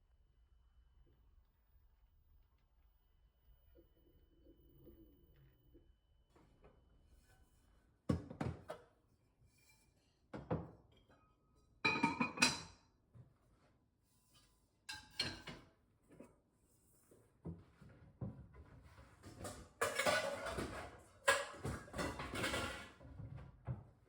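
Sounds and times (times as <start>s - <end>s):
dishes and glasses clinking: 11.8s - 12.8s, 14.9s - 15.6s, 19.8s - 23.0s.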